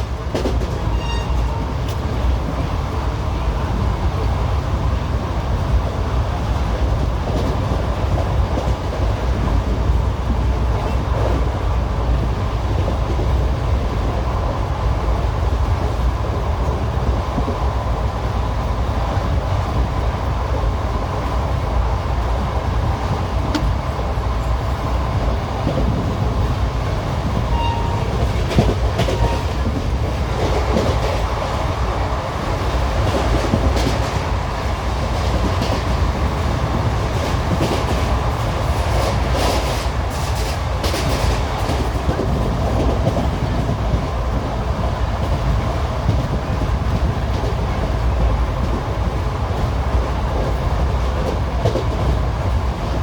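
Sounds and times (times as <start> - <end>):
wheels clickety-clack: 0.0 - 2.8, 25.6 - 53.0
train coach rumble: 0.0 - 53.0.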